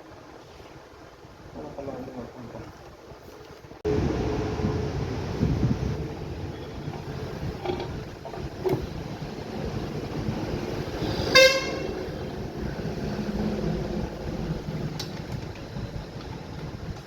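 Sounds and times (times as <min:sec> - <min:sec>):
background noise: 0:00.0 - 0:17.0
vehicle horn toot: 0:11.0 - 0:12.1.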